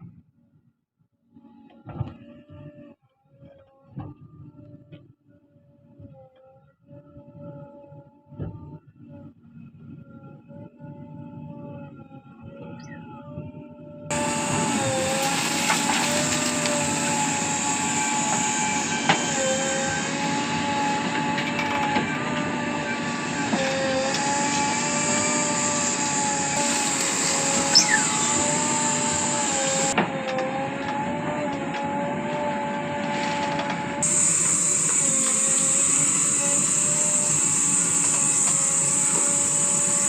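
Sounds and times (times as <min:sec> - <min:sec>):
backhoe engine and hydraulics whine: 0:12.6 - 0:40.0.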